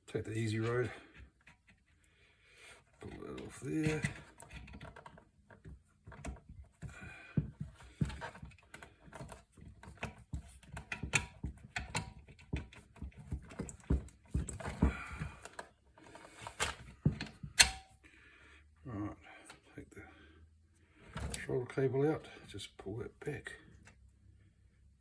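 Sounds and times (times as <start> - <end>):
tools and parts clicking and rattling: 2.9 - 18.0.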